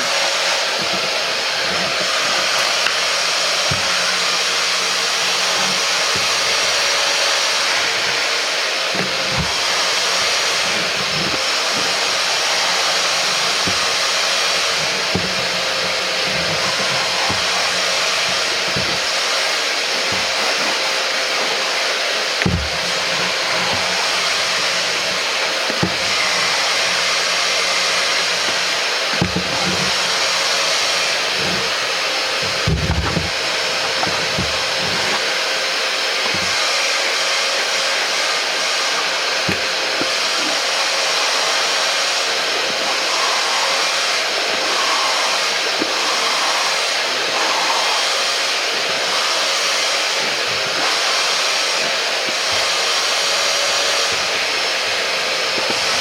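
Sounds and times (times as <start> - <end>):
carpet cleaner motor and suction: 0.0 - 56.0.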